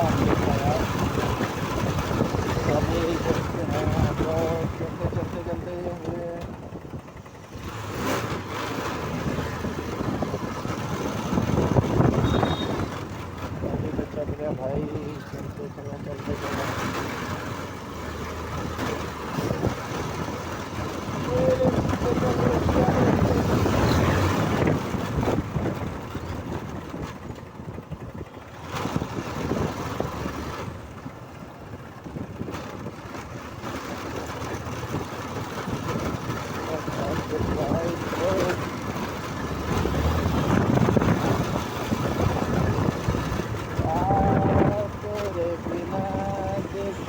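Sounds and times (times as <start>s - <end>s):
wind on microphone: 0.0s - 12.9s, 21.1s - 33.0s, 34.8s - 47.0s
motorcycle engine running: 0.0s - 47.0s.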